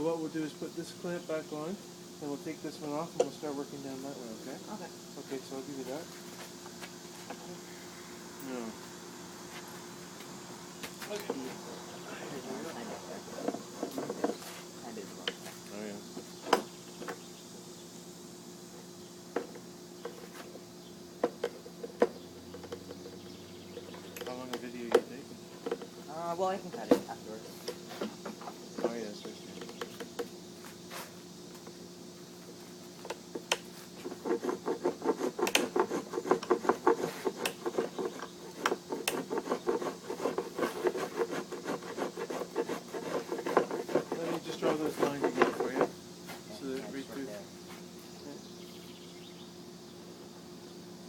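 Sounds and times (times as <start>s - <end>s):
steady low hum: 0.0s - 51.0s
hand tool scraping wood: 12.2s - 14.7s, 33.0s - 46.9s.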